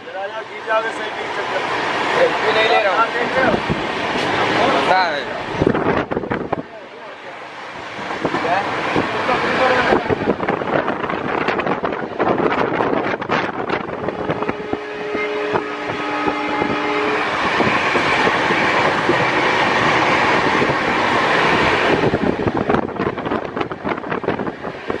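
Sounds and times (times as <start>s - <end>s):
train wheels rattling on rails: 0.0s - 25.0s
wind rushing: 1.6s - 25.0s
train horn chord: 14.1s - 17.4s.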